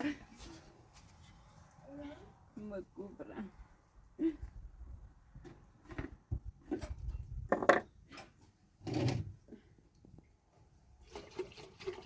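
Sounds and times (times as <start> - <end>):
wooden objects knocking: 7.5 - 7.9.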